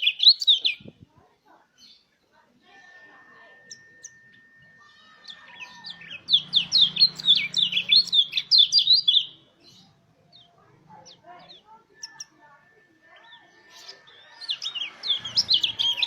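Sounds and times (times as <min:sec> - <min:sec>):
high bird chirps: 0:00.0 - 0:00.9, 0:02.7 - 0:16.0
bird song descending run: 0:03.3 - 0:12.5, 0:13.1 - 0:16.0.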